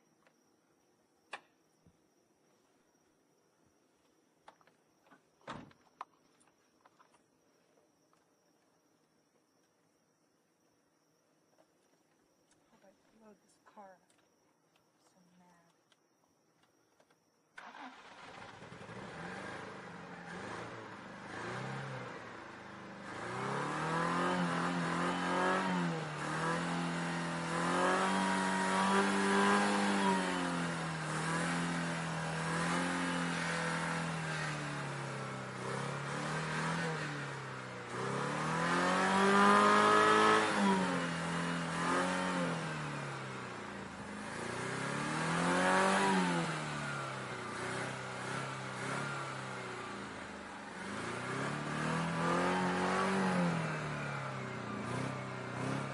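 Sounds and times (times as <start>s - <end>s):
car engine revving: 17.6s - 55.9s.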